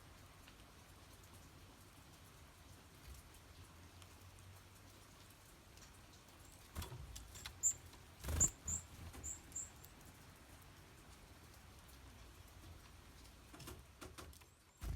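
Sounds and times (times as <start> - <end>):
high-pitched songbird calls: 7.4 - 9.8.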